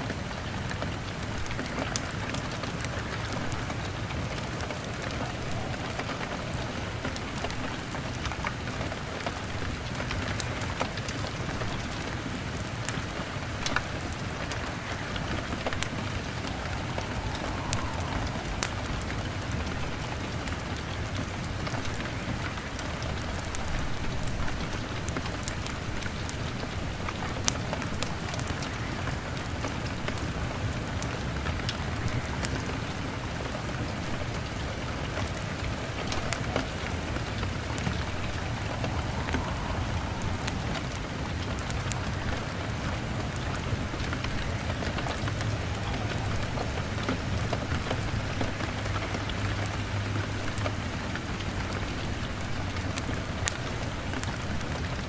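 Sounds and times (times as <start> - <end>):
rain beating on a window: 0.0 - 55.0
sharp crackles: 0.0 - 55.0
low steady rumble: 14.3 - 21.9.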